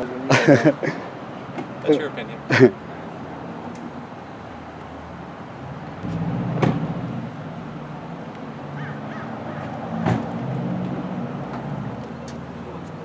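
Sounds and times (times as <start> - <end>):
vehicle engines idling: 0.0 - 13.0
sharp knocks: 6.0 - 7.0.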